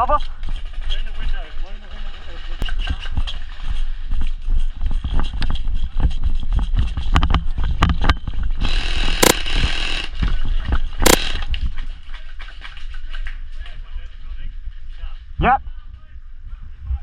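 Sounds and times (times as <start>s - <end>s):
rapid-fire burst: 8.6s - 10.3s, 11.0s - 11.6s
airsoft gun shots: 8.7s - 10.1s, 11.0s - 11.6s.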